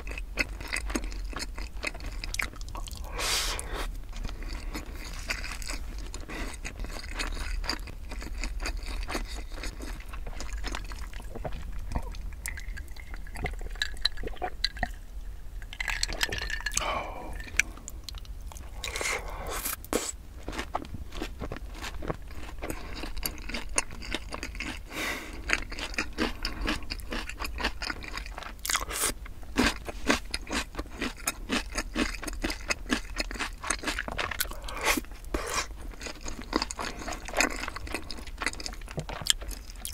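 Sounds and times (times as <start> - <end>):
crunchy chewing: 0.0 - 15.0, 15.7 - 39.9.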